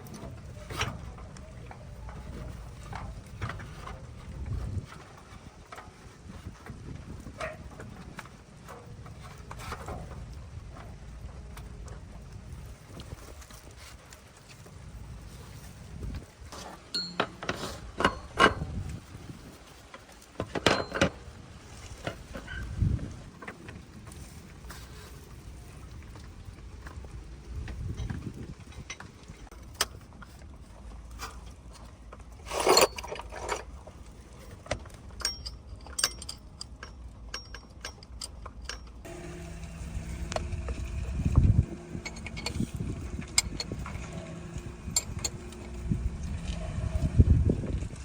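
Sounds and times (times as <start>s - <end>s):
metal parts and tools clinking: 16.6s - 19.0s, 20.4s - 22.7s, 32.4s - 33.8s, 34.6s - 47.1s.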